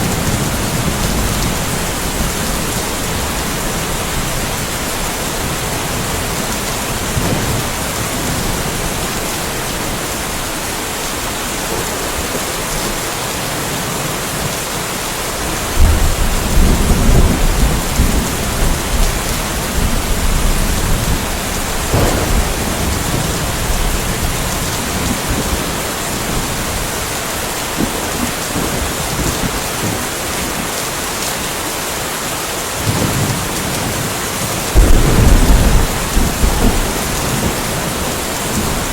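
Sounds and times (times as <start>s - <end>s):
rolling thunder rumble: 0.0s - 14.6s, 15.4s - 30.7s, 32.8s - 38.9s
steady rain hiss: 0.0s - 38.9s
thunder cracks: 15.8s - 26.8s, 34.8s - 38.9s.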